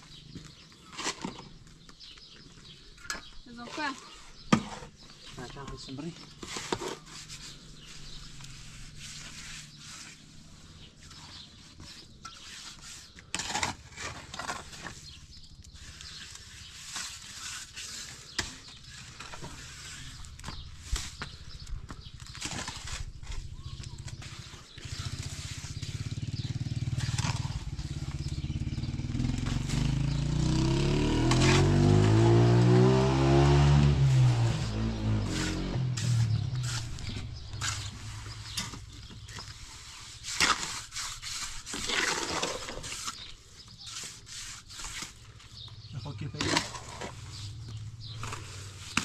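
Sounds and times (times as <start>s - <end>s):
knocks and scrapes: 0.3s - 49.0s
engine rising in pitch: 25.1s - 37.4s.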